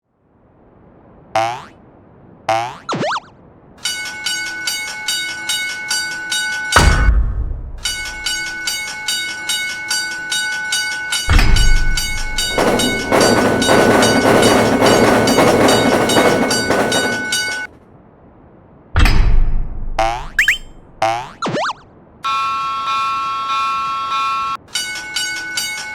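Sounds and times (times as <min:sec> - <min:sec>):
railroad crossing bell ringing: 0:03.8 - 0:07.0, 0:07.8 - 0:17.7, 0:22.3 - 0:25.9
train rumbling and clattering: 0:03.8 - 0:21.0, 0:24.6 - 0:25.9.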